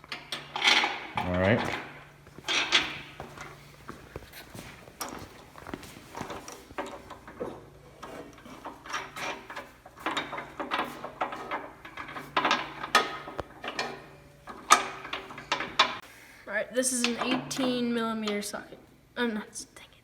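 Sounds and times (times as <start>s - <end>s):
bolts being handled: 0.0s - 16.0s
hand tools clanking: 0.0s - 16.0s.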